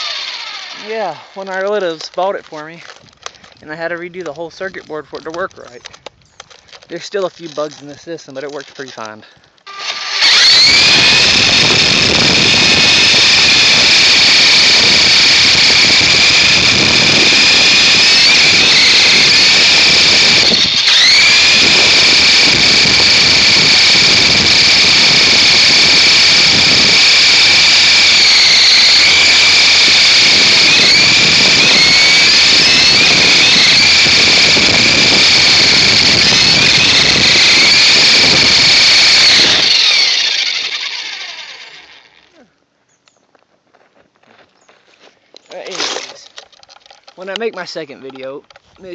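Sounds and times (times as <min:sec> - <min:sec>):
model helicopter motor whining: 0:00.0 - 0:03.6, 0:09.6 - 0:42.4.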